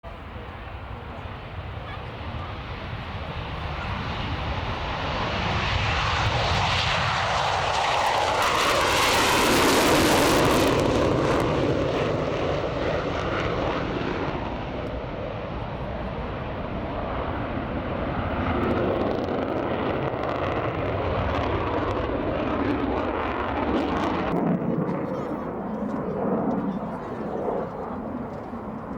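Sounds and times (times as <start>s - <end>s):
jet engines passing: 0.0s - 28.9s.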